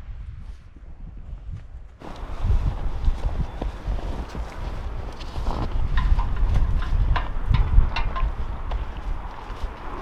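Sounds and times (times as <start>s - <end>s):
wind rumbling on microphone: 0.0s - 10.0s
footsteps crunching in snow: 1.9s - 7.1s, 8.2s - 10.0s.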